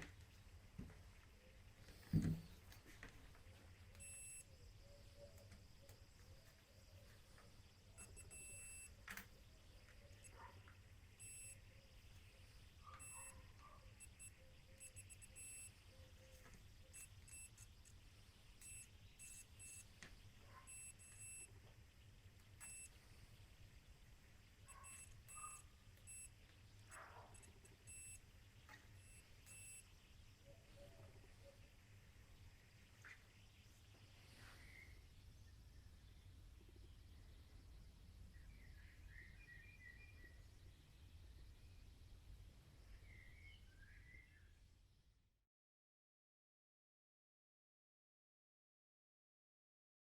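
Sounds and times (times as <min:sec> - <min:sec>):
faint high-pitched beeps: 0:01.4 - 0:35.5.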